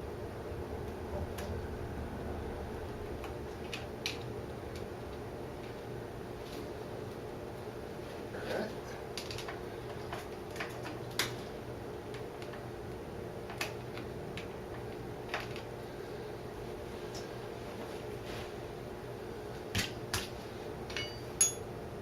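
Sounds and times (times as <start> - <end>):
steady low hum: 0.0 - 22.0
hand tools tapping on metal: 20.9 - 21.7.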